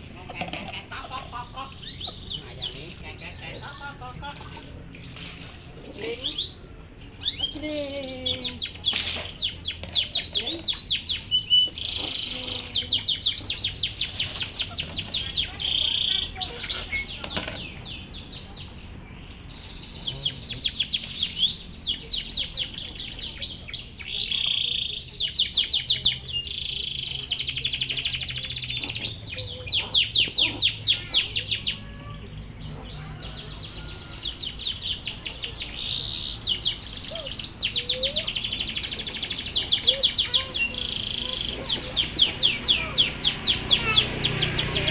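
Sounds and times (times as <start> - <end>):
canary singing trills: 0.0 - 5.0, 5.9 - 44.9.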